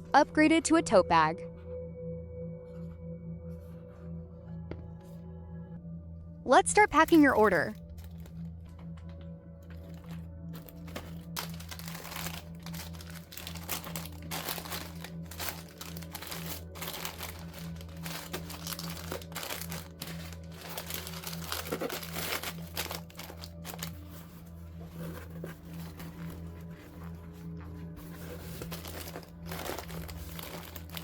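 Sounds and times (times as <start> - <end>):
soft background music: 0.0 - 31.0
packaging crinkling and rustling: 7.0 - 31.0.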